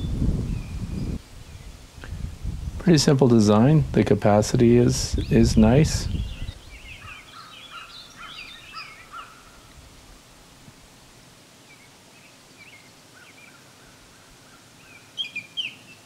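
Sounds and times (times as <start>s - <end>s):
small birds chirping: 5.1s - 9.7s, 11.6s - 16.0s.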